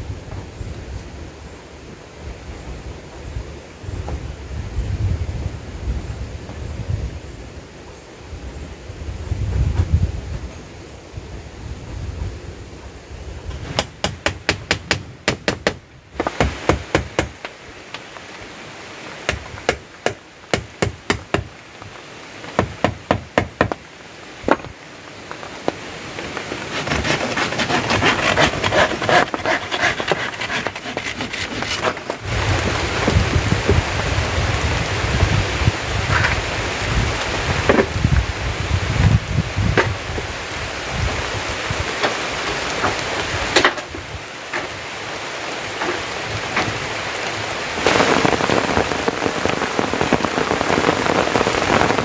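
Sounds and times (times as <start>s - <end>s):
dense rustling hiss: 0.0s - 52.0s
low wind rumble: 0.0s - 52.0s
sharp knocks on wood: 13.8s - 17.3s, 19.3s - 21.5s, 22.6s - 23.8s.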